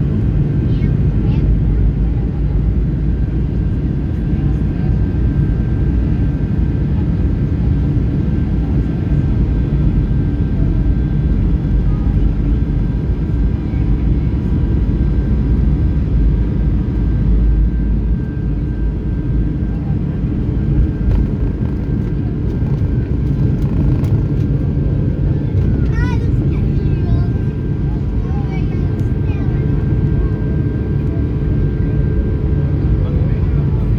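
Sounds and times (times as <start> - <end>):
jet engines roaring: 18.8 - 33.9.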